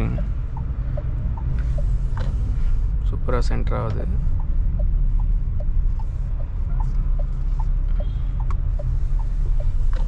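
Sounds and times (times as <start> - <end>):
indicator ticking: 0.0 - 1.9, 4.4 - 10.0
road and engine rumble in car: 0.0 - 10.0.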